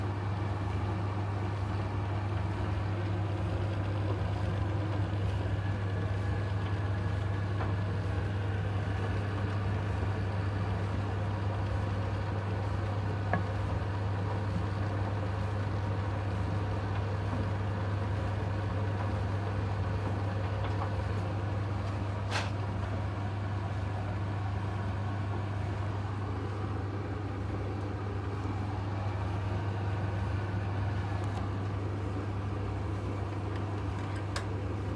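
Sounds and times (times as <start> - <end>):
tumble dryer running: 25.3 - 34.9.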